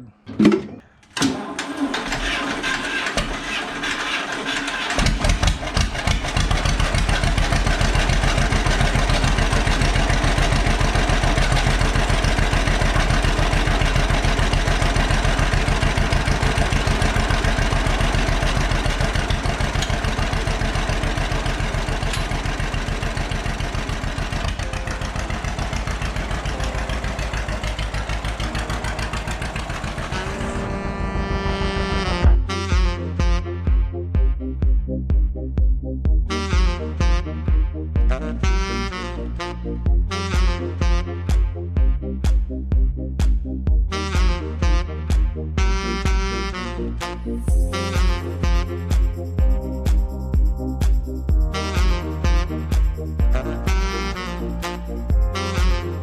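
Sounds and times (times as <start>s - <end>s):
tractor engine cranking: 0.0s - 32.1s
tractor engine running: 0.0s - 32.9s.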